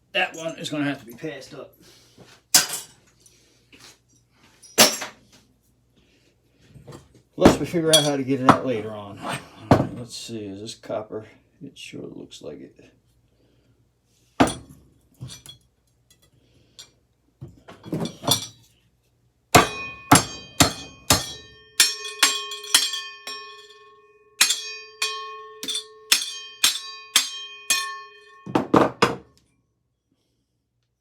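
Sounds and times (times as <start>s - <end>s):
hammer blows on ringing metal: 19.6s - 29.2s
metal knocks: 19.6s - 29.3s.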